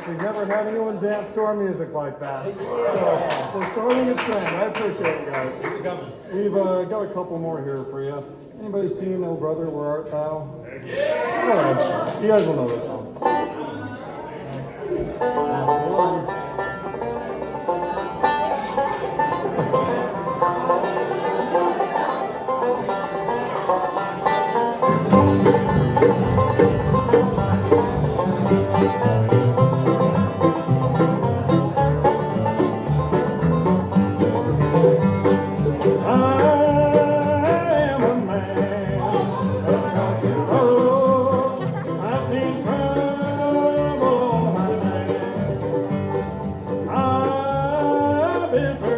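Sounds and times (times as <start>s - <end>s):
banjo: 11.8s - 14.0s, 14.6s - 48.9s
guitar picking: 15.2s - 48.9s.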